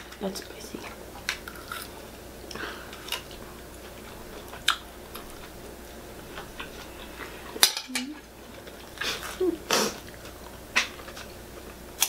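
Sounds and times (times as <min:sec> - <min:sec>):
people chewing: 0:00.0 - 0:12.0.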